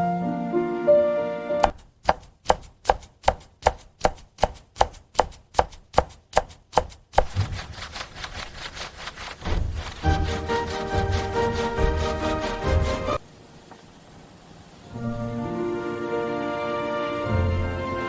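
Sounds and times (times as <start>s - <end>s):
music: 0.0s - 1.7s, 10.0s - 13.2s, 15.0s - 18.0s
knife chopping vegetables: 1.6s - 13.2s
steady crackling hiss: 11.7s - 18.0s.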